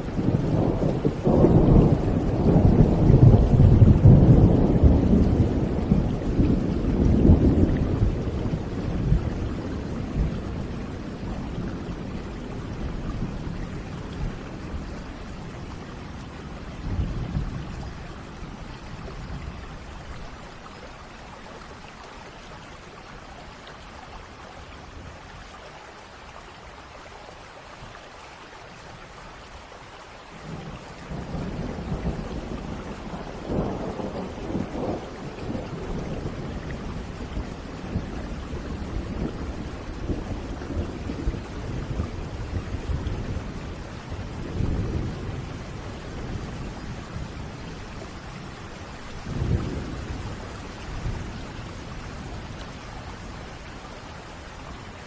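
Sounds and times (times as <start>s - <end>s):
rolling thunder: 0.0s - 20.3s, 30.4s - 53.9s
steady rain: 0.0s - 55.0s.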